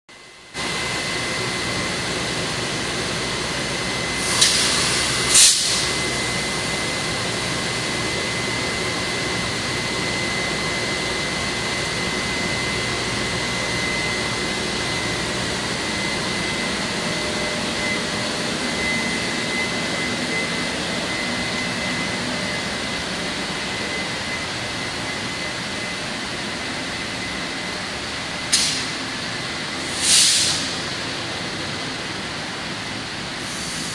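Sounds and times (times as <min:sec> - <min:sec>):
high whine: 0:00.2 - 0:33.9
train locomotive pulling out: 0:00.6 - 0:33.9
short hisses: 0:29.9 - 0:30.7.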